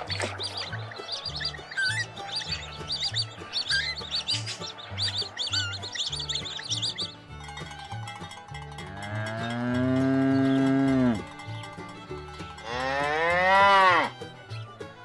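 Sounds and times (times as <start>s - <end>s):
cow mooing: 8.9s - 11.3s, 12.6s - 14.1s.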